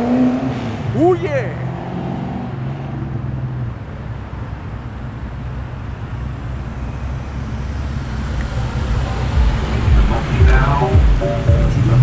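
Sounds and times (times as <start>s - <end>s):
car engine rumbling driving past: 5.1s - 12.0s.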